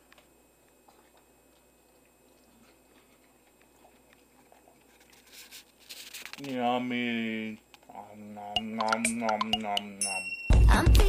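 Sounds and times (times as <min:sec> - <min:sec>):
faint chewing: 0:00.1 - 0:05.9.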